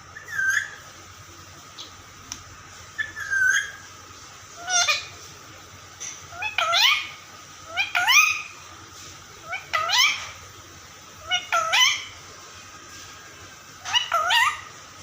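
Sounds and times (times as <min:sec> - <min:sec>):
parrot meow-like calls: 0:04.6 - 0:05.1, 0:06.3 - 0:08.5, 0:09.5 - 0:10.4, 0:11.2 - 0:12.2, 0:13.8 - 0:14.8.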